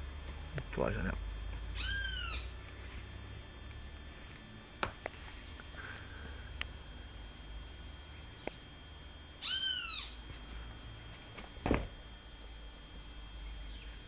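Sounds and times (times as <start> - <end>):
loud bird call: 1.8 - 2.5, 9.4 - 10.2.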